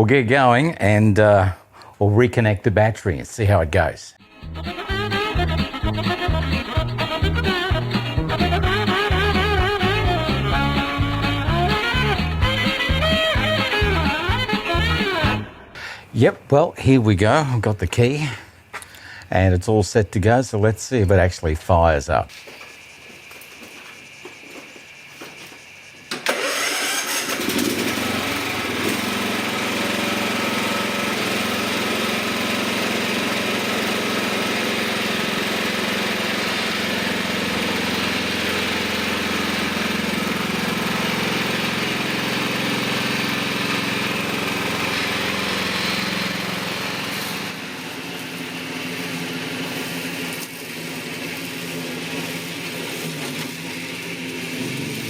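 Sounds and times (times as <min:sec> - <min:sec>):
ride-on mower engine starting: 0:04.2 - 0:16.0, 0:26.1 - 0:55.0.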